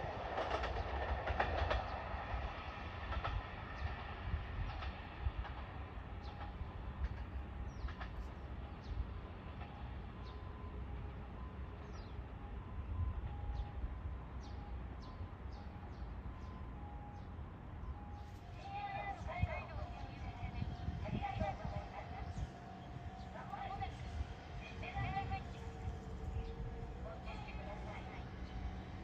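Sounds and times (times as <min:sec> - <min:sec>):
train rumbling away: 0:00.0 - 0:29.0
birds chirping: 0:18.1 - 0:29.0.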